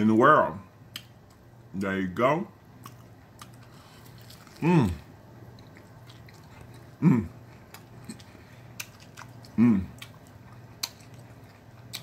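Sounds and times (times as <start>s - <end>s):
man chewing food: 0.8s - 1.6s, 2.6s - 12.0s
closed-mouth vocal sound: 4.6s - 5.1s, 7.0s - 7.4s, 9.5s - 10.0s.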